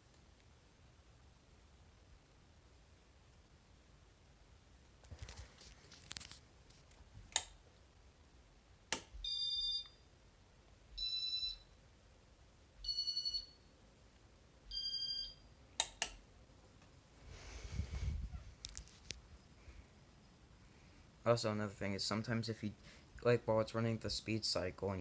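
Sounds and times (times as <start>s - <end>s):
sharp clicks: 7.3s - 7.6s, 15.8s - 16.2s.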